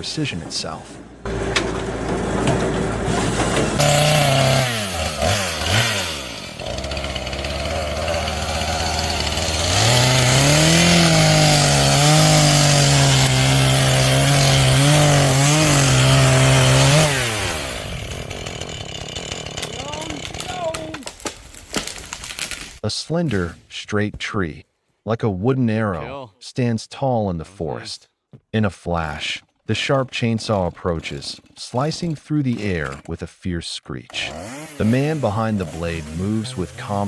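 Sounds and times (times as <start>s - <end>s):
circular saw log splitter running: 1.3s - 21.1s.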